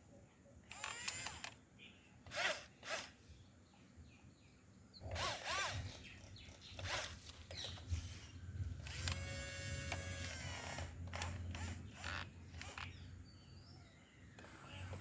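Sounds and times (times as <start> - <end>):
small electric motors whirring: 0.7 - 1.6, 2.2 - 3.2, 5.0 - 13.0, 14.4 - 15.0.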